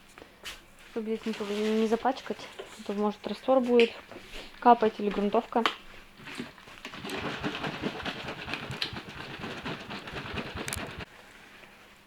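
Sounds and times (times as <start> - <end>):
brush scrubbing a wall: 1.0 - 3.1, 6.2 - 11.1.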